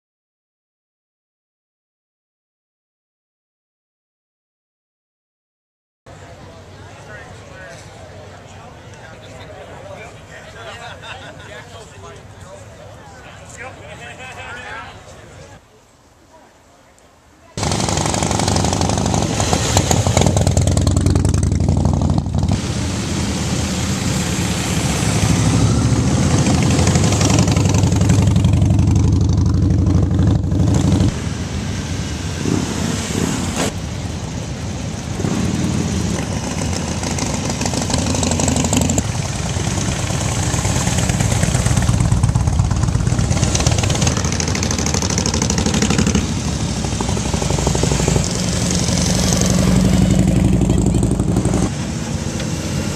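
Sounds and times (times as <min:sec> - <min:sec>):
motorcycle engines revving: 0:17.6 - 0:52.9.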